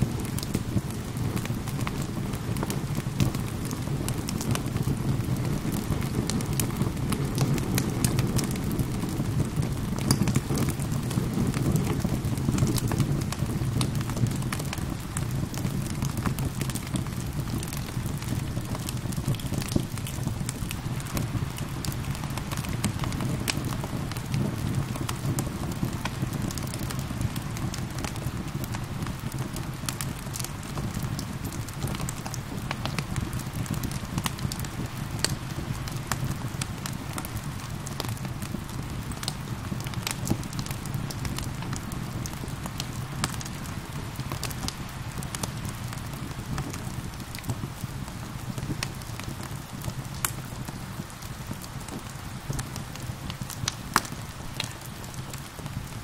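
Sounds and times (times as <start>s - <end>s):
fire crackling and popping: 0.0s - 56.0s
steady rain: 0.0s - 56.0s.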